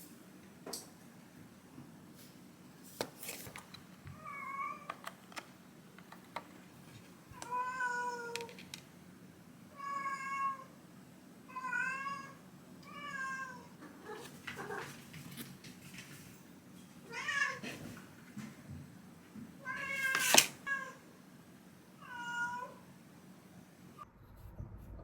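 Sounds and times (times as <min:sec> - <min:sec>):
cat meowing: 0:07.4 - 0:08.4, 0:09.8 - 0:10.7, 0:22.0 - 0:22.8.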